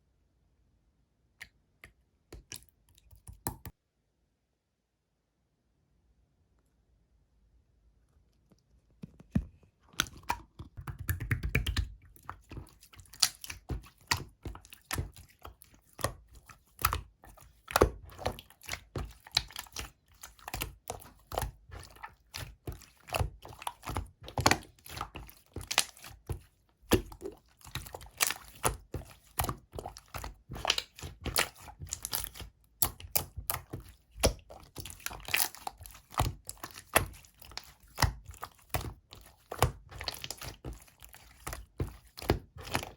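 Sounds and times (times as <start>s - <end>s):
slime squished by hand: 10.0s - 42.9s.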